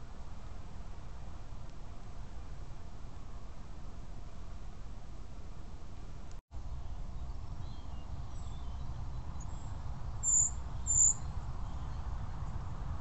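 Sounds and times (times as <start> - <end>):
high-pitched bird chirps: 10.2 - 11.2.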